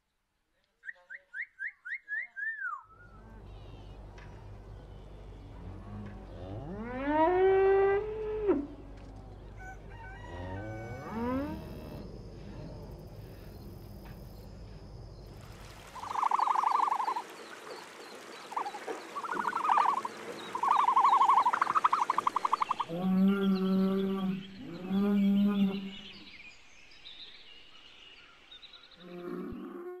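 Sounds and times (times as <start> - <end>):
cattle mooing: 5.5 - 12.1
short high pulsing calls: 18.5 - 22.8.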